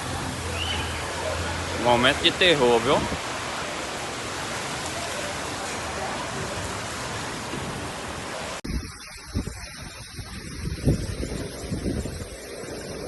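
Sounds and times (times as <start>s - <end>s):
heavy rain pouring: 0.0s - 13.0s
wind rumbling on microphone: 2.9s - 3.5s, 6.3s - 13.0s.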